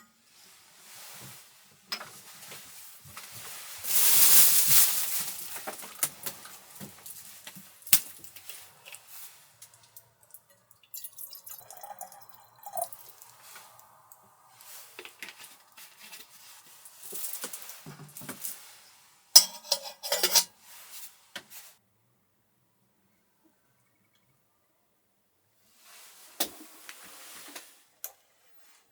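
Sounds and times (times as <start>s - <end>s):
dishes and utensils clinking: 19.4s - 20.5s.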